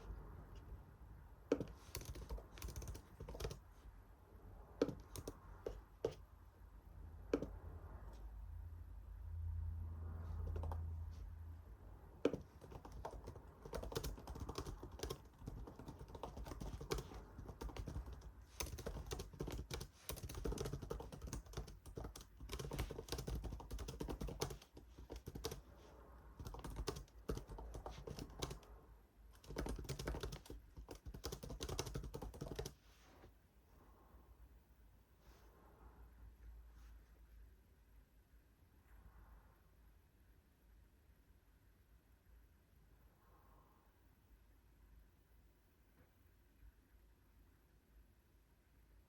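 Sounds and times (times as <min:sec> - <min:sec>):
typing on computer keyboard: 0:01.5 - 0:03.6, 0:04.8 - 0:06.2, 0:07.3 - 0:07.6, 0:10.4 - 0:10.9, 0:12.2 - 0:25.7, 0:26.4 - 0:28.7, 0:29.3 - 0:32.8.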